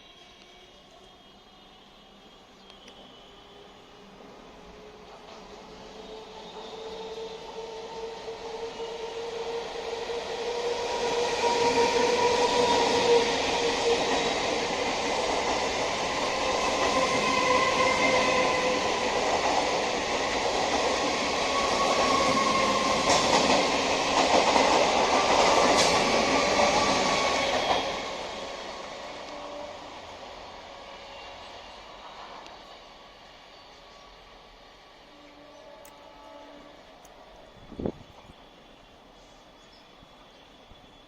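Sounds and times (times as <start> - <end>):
electric train rumbling on rails: 0.0 - 41.0.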